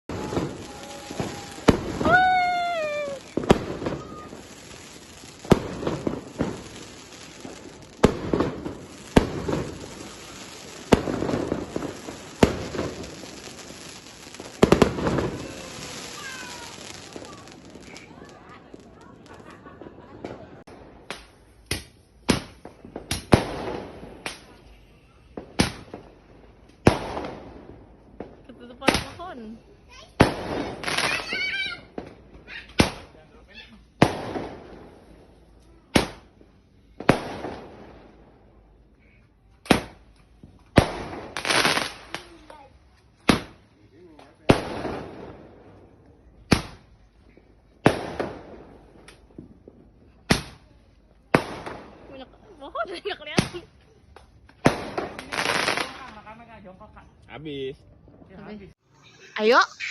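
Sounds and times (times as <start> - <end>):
firecrackers banging: 0.0 - 24.6, 26.7 - 29.4, 30.1 - 33.2, 39.6 - 42.6, 44.4 - 52.3, 52.9 - 56.4.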